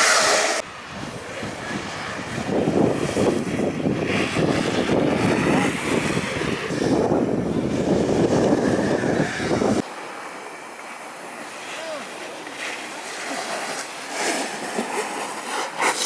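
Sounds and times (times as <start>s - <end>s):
wind buffeting microphone: 0.6s - 9.8s.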